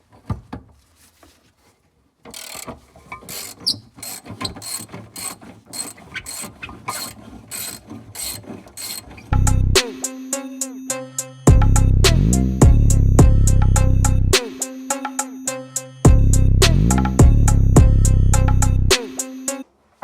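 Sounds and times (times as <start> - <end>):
ratchet wrench clicking: 2.3 - 9.0.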